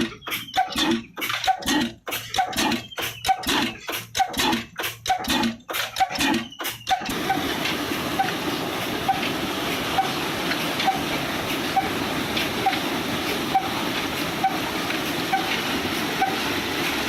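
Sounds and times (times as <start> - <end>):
diesel engine beating: 0.0 - 17.0
constant rushing noise: 7.1 - 17.0.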